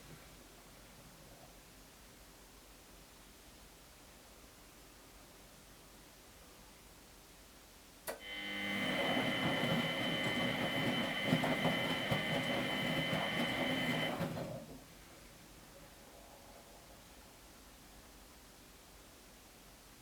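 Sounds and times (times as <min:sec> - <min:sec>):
washing machine motor whine: 0:08.1 - 0:14.8
water churning in drum: 0:08.8 - 0:14.4.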